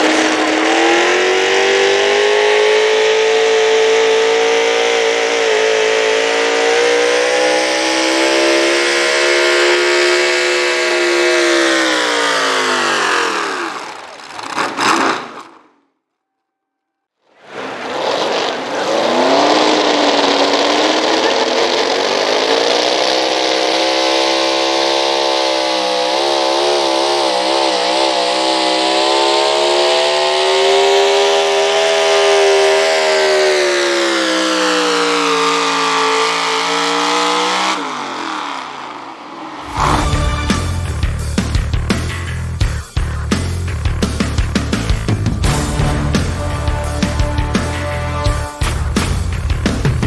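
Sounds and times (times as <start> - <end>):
truck engine revving hard: 0.0 - 15.5, 17.5 - 39.0, 39.6 - 42.6, 43.2 - 50.0
music: 39.7 - 50.0.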